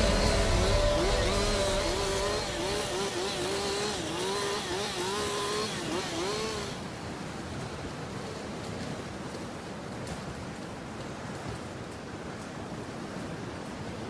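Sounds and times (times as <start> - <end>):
chainsaw cutting wood: 0.0 - 6.8
steady outdoor hiss: 0.0 - 10.0.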